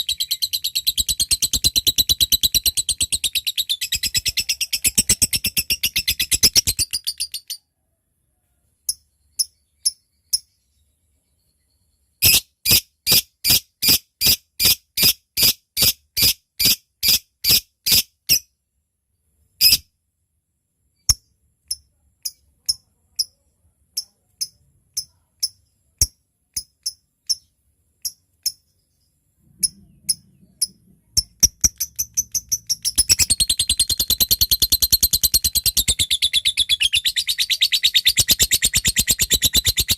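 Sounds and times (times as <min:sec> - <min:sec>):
lovebird chattering trill: 0:00.0 - 0:07.6, 0:29.6 - 0:39.9
lovebird ticking chirps: 0:00.0 - 0:07.6, 0:08.9 - 0:10.6, 0:21.1 - 0:28.8, 0:29.6 - 0:39.9.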